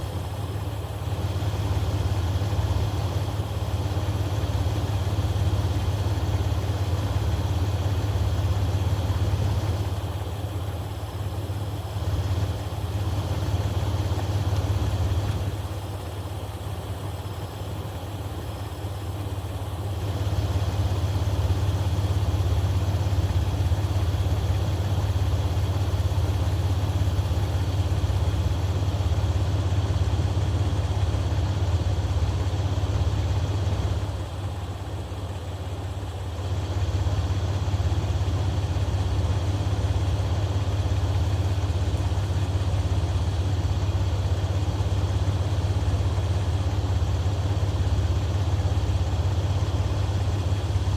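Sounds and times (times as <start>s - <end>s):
car engine idling: 0.0s - 50.9s.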